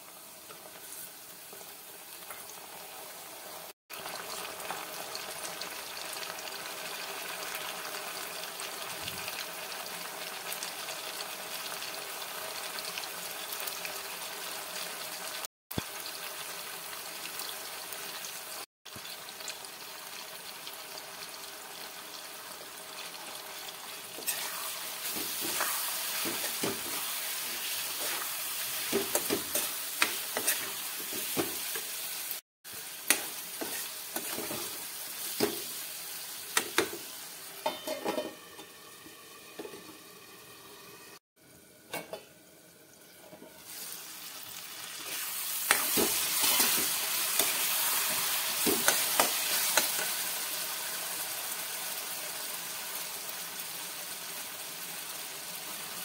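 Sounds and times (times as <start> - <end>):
vegetables sizzling in oil: 0.0 - 56.0
steel spoon scraping a pan: 24.2 - 31.9, 33.1 - 35.6, 45.0 - 50.2.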